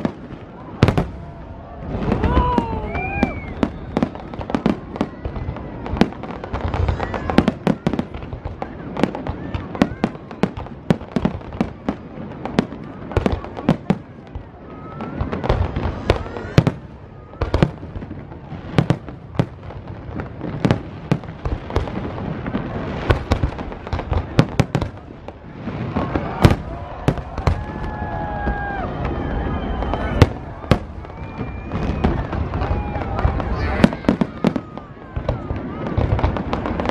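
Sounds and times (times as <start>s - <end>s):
fireworks bangs and crackles: 0.0s - 36.9s
firework whistling glides: 0.1s - 10.6s, 14.5s - 19.4s, 25.4s - 36.9s.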